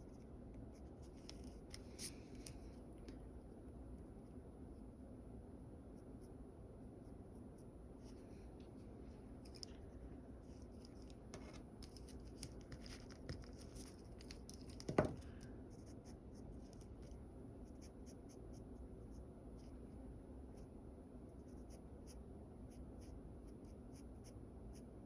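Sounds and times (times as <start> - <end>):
knock on drawing surface: 14.9 - 15.3.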